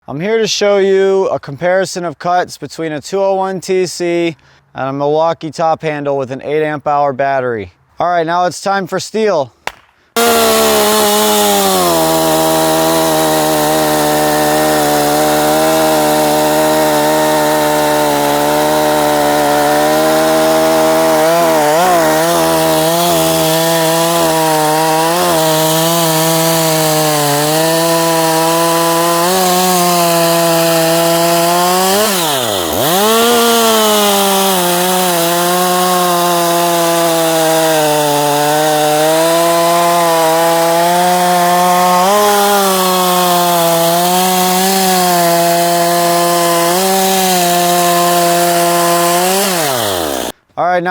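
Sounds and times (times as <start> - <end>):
chainsaw cutting log: 9.7 - 50.4.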